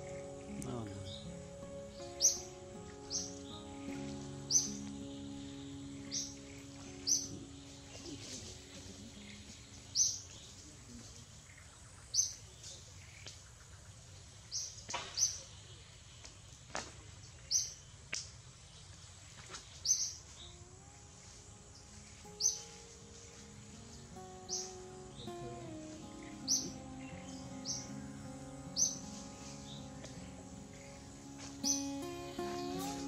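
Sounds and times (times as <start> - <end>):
bird chirping: 0.0 - 13.6, 18.7 - 33.0
faint outdoor background: 0.0 - 33.0.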